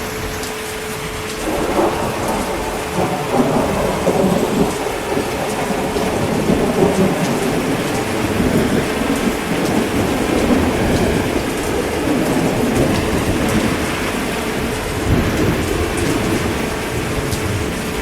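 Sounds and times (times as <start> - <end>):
heavy rain: 0.0 - 18.0
low rolling thunder: 0.0 - 18.0
raindrops pattering on a surface: 0.0 - 18.0.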